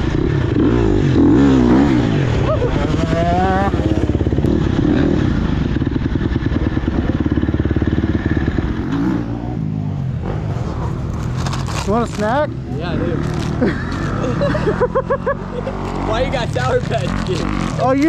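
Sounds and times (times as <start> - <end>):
dirt bike engine revving: 0.0 - 5.2, 10.2 - 18.0.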